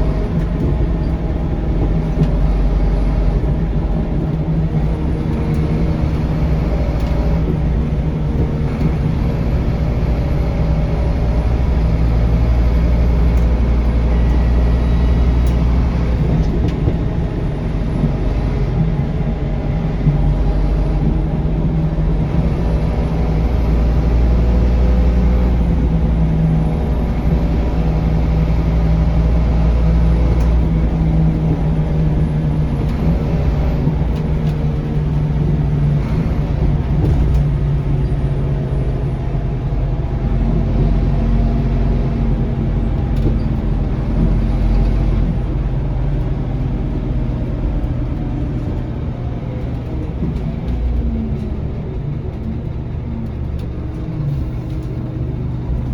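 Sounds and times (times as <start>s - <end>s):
bus diesel engine drone: 0.0s - 55.9s.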